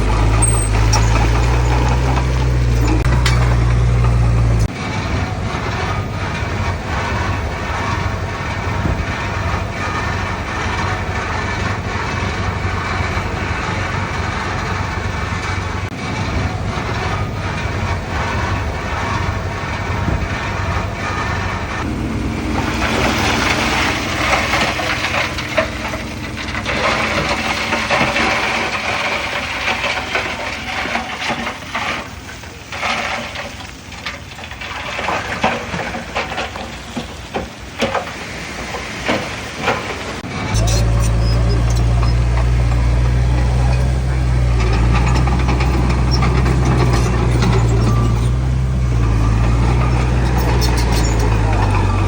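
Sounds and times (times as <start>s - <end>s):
metal clanks and cracks: 0.0s - 4.8s, 22.6s - 52.0s
diesel earthmoving machinery: 0.0s - 52.0s
soil and rock crunching: 0.0s - 52.0s.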